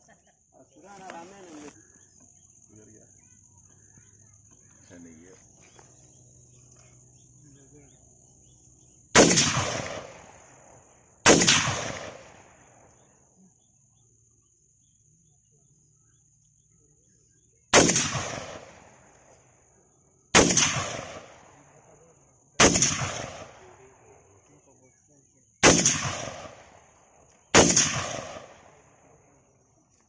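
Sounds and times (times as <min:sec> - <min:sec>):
gunshots with echo: 0:09.2 - 0:10.6, 0:11.2 - 0:12.7, 0:17.7 - 0:19.0, 0:20.4 - 0:21.5, 0:22.6 - 0:23.9, 0:25.6 - 0:26.8, 0:27.5 - 0:28.8.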